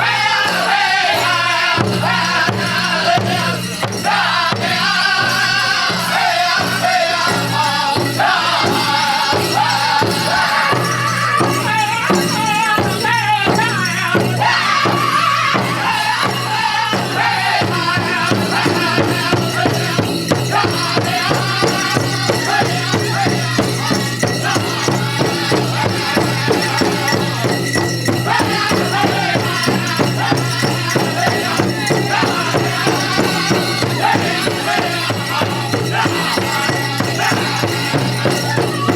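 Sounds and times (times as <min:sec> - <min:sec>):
bells jingling: 0:00.0 - 0:38.9
fast big drum beat: 0:00.0 - 0:38.9
group singing: 0:00.0 - 0:38.9.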